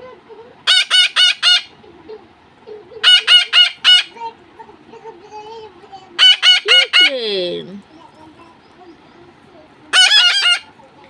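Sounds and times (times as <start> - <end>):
parakeets screeching: 0.6 - 1.7, 3.0 - 4.2, 6.2 - 7.3, 9.9 - 10.7.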